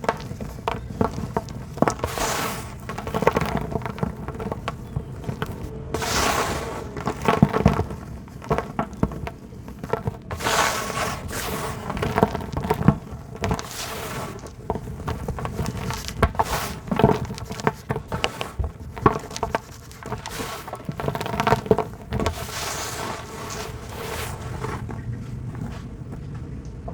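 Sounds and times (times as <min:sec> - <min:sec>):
dry dirt crumbling and snapping: 0:00.0 - 0:26.9
sand pouring in soft hiss: 0:05.9 - 0:07.2, 0:10.4 - 0:12.0.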